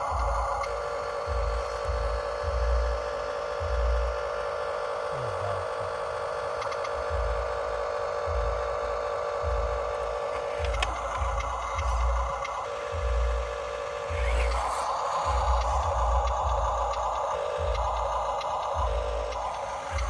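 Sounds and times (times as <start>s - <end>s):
model vehicle whining: 10.3s - 20.0s.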